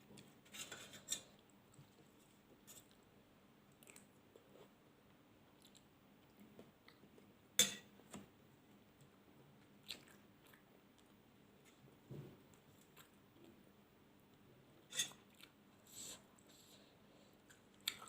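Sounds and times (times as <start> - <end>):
close chewing mouth sounds: 3.7 - 4.2, 9.7 - 11.2.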